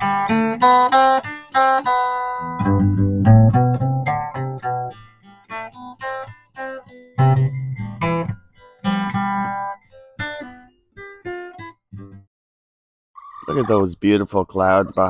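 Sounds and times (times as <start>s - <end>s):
acoustic guitar plucking: 0.0s - 12.3s.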